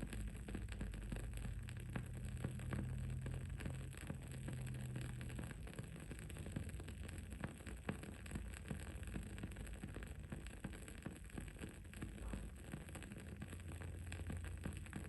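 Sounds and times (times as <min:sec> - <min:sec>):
faint background hiss: 0:00.0 - 0:15.0.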